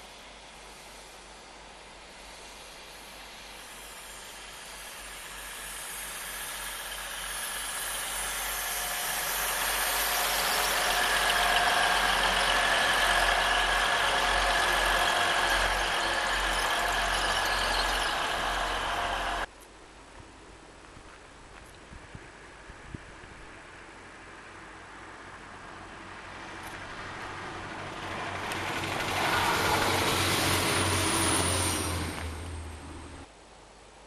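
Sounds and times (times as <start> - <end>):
passenger train passing: 0.0 - 19.5, 22.4 - 33.3
high whine: 2.6 - 19.5.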